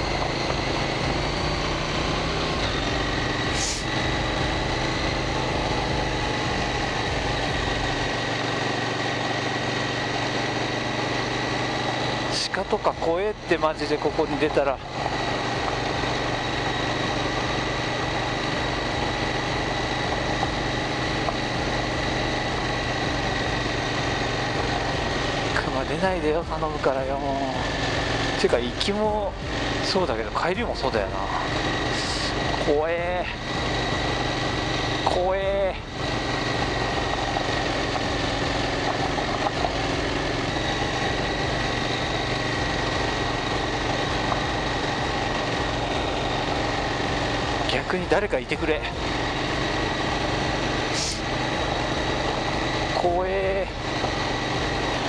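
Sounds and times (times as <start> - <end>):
motorcycle engine running: 0.0 - 55.0
road and wind noise: 0.0 - 55.0.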